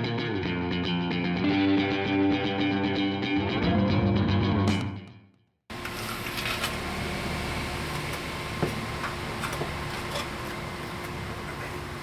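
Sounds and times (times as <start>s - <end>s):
chalk scraping on concrete: 5.7s - 7.0s.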